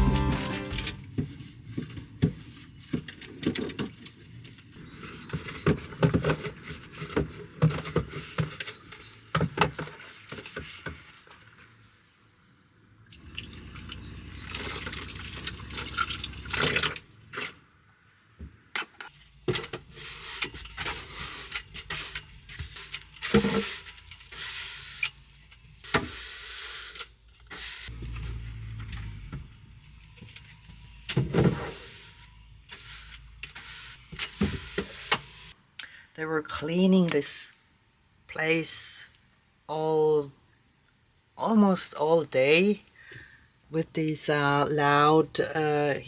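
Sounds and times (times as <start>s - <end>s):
water pouring and dripping: 13.1s - 17.2s.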